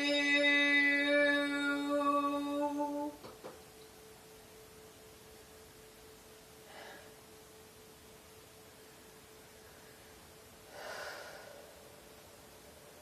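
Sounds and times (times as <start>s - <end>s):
woman singing sustained note: 0.0s - 3.2s
faint steady pure tone: 0.0s - 13.0s.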